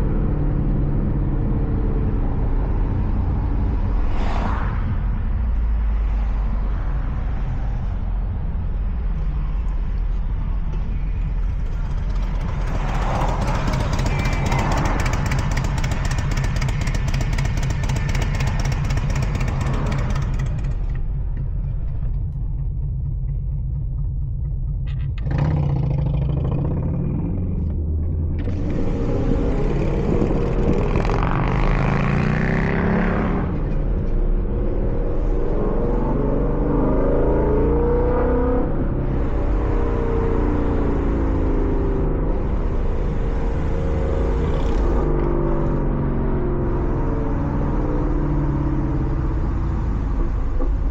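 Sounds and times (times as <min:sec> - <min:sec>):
car engine accelerating: 0:09.1 - 0:50.9.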